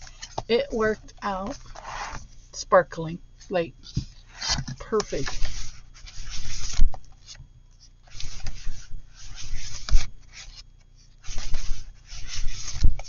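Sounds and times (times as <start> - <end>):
paper sliding and rubbing: 1.4 - 2.3, 3.8 - 7.4, 8.0 - 13.0
paper panels flipping: 3.9 - 7.4, 8.1 - 10.6, 11.2 - 13.0.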